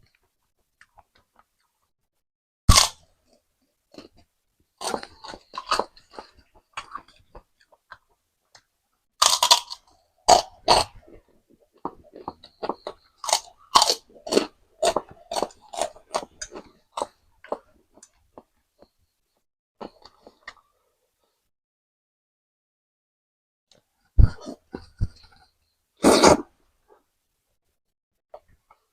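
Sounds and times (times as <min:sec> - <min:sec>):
crunching and chewing crackers: 0:02.7 - 0:18.6.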